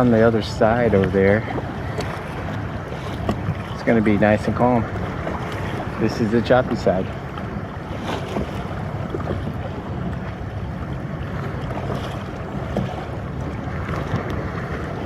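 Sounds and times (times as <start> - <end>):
water splashing around kayak: 0.0 - 15.0
wind noise on microphone: 7.4 - 15.0.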